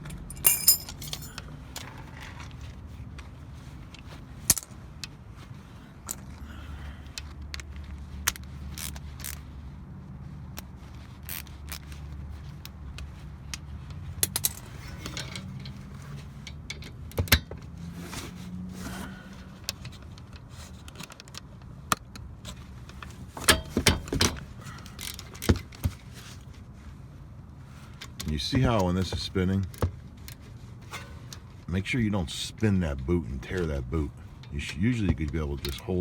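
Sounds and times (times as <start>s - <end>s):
wrench clinking on metal bolts: 0.0s - 1.5s
steady low hum: 0.0s - 1.8s, 26.4s - 36.0s.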